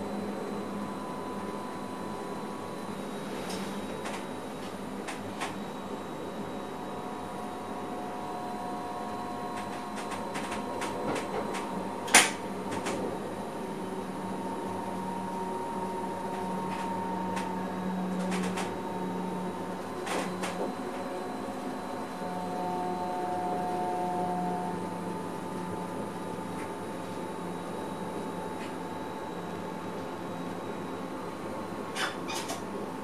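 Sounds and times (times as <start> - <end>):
electric train hum: 0.0 - 33.0
whining tones: 6.6 - 26.3.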